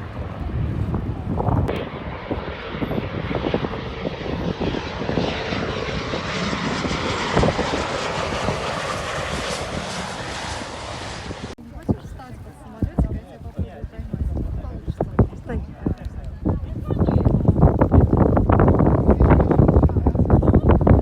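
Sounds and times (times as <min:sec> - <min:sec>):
airliner engines rushing: 0:00.0 - 0:12.1.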